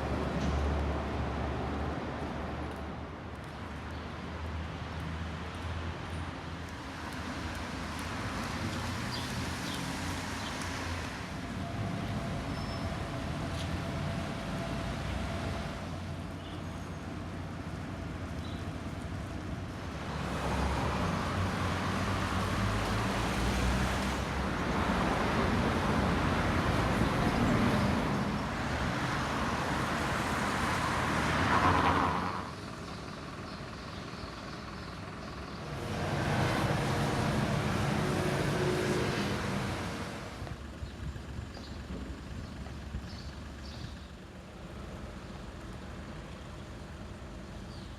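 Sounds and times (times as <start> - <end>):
rain: 0.0 - 32.8, 35.6 - 40.8, 44.2 - 47.9
tyres hissing on wet road: 4.1 - 32.8, 35.6 - 40.6.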